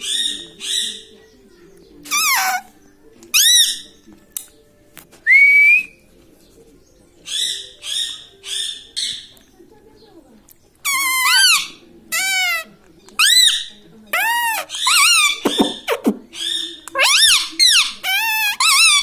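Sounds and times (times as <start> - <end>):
parakeet calling: 2.0 - 4.0, 7.3 - 9.3, 10.8 - 19.0.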